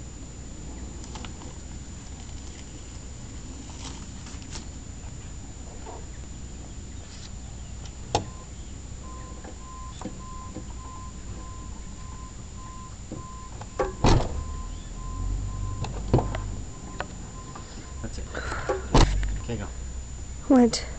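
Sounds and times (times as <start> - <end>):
low background rumble: 0.0 - 20.9
repeating electronic beep: 14.3 - 18.2.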